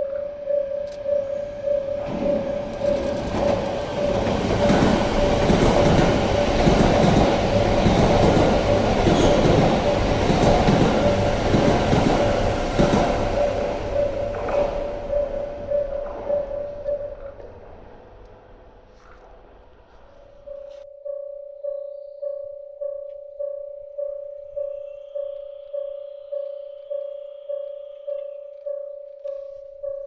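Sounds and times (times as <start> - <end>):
steady pulsing tone: 0.0 - 18.8, 20.0 - 30.0
train rumble and rail clatter: 1.5 - 20.4.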